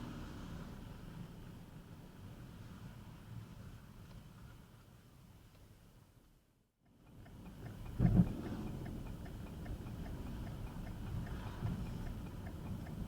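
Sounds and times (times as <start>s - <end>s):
car rumbling on the move: 0.0s - 1.8s, 7.0s - 13.0s
light even ticking: 6.9s - 13.0s.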